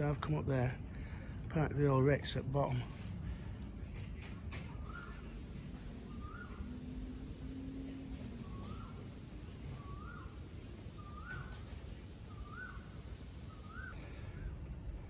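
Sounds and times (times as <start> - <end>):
bird calling rising note: 4.9 - 14.0
low background rumble: 4.9 - 15.0.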